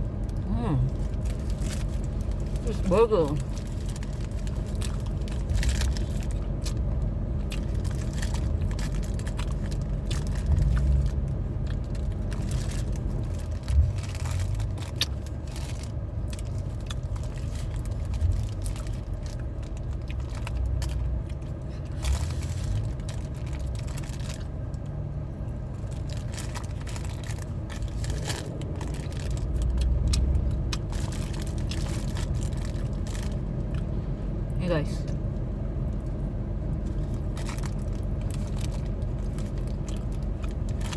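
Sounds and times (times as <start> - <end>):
steady low rumble: 0.0 - 40.9
wrapper rustling and clicks: 25.7 - 33.8, 36.8 - 40.9.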